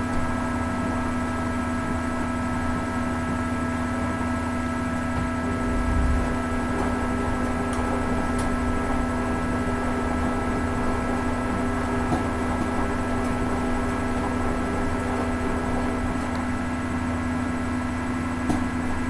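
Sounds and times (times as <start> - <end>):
washing machine motor hum: 0.0 - 19.0
washing machine drum rumble: 4.6 - 19.0.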